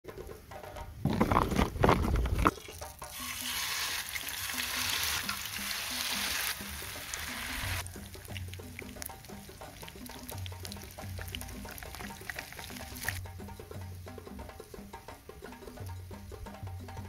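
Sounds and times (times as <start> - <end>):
knocks and rustles: 0.1 - 2.7
battered food sizzling in oil: 2.5 - 13.2
soft plucked background music: 2.5 - 17.0.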